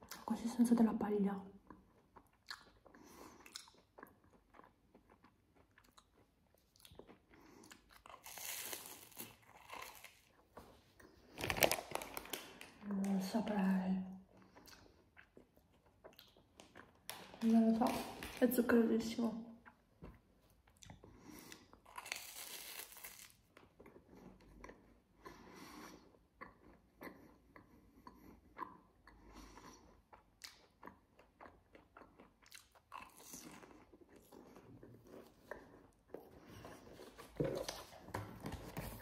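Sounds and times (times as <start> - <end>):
person crunching crisp snack: 2.2 - 10.4, 21.7 - 23.5.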